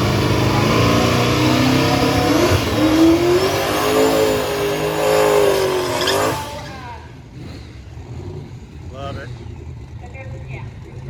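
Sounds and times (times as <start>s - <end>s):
racing engine revving hard: 0.0s - 8.5s.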